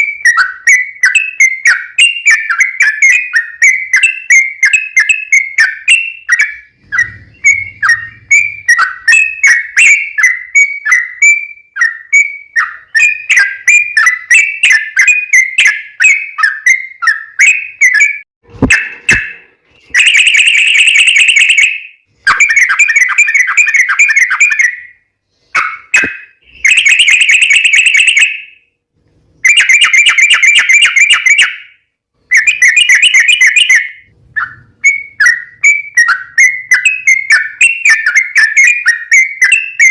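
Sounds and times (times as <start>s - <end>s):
bulbul chirping and trilling: 0.0s - 24.9s, 25.5s - 28.4s.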